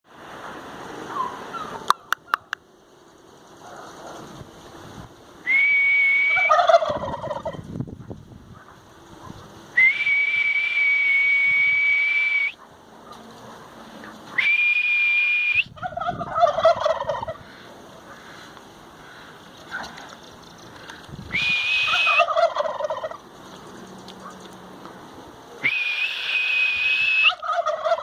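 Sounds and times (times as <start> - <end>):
turkeys gobbling: 1.1 - 2.6, 6.2 - 9.4, 15.7 - 24.9, 27.2 - 28.0
loud high whistle: 5.4 - 6.5, 9.8 - 12.6, 14.4 - 15.8, 21.3 - 22.3, 25.6 - 27.4.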